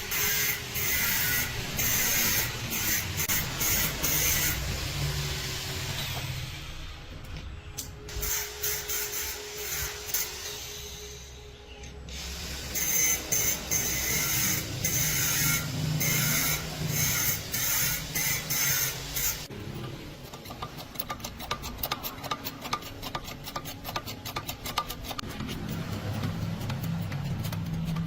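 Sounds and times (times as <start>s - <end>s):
tool rasping on a surface: 0.0s - 4.8s, 12.7s - 19.5s, 20.2s - 28.0s.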